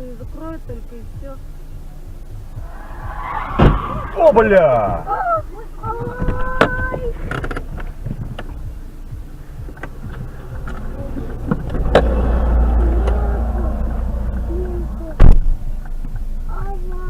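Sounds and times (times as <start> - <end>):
car engine and road rumble: 0.0 - 17.0
loud collision bang: 2.6 - 5.1.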